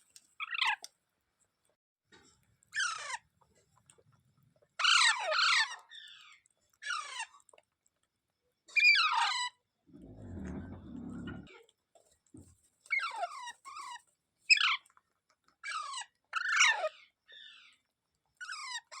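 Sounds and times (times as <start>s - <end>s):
low muffled rumble: 10.0s - 11.5s.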